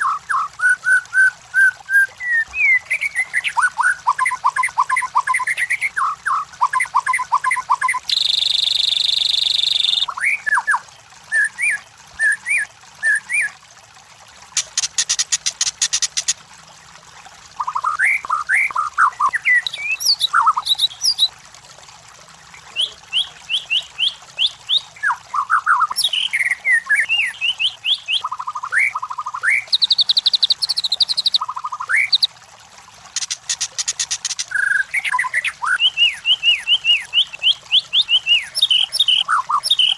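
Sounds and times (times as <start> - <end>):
bird singing whistled notes: 0.0 - 5.8, 6.8 - 10.8, 17.7 - 21.3, 22.7 - 32.3, 34.5 - 39.9.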